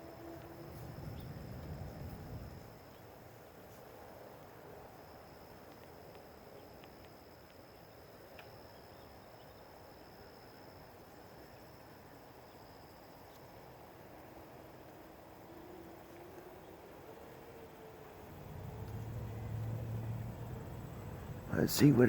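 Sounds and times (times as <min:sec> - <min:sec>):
crickets trilling: 0:00.0 - 0:22.0
soft outdoor hiss: 0:00.0 - 0:22.0
faint ticks: 0:05.5 - 0:09.1.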